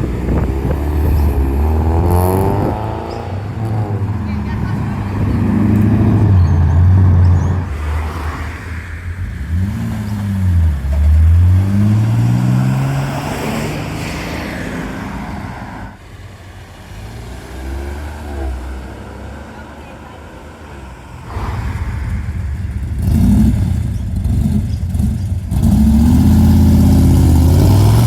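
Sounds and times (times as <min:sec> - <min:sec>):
car engines: 0:00.0 - 0:28.0
car accelerating past: 0:20.9 - 0:28.0.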